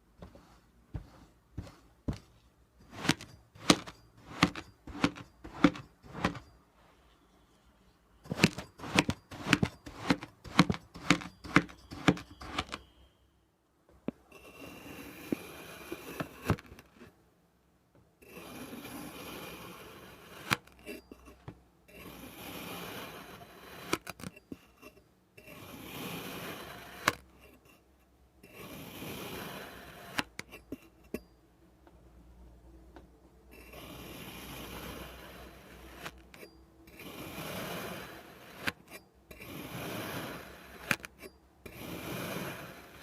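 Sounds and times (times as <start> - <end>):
sand being cut: 2.9 - 6.4, 8.3 - 12.8, 18.4 - 20.5, 22.0 - 24.1, 25.6 - 27.2, 28.6 - 30.2, 33.7 - 36.2, 37.0 - 38.8, 39.4 - 41.1, 41.7 - 43.0.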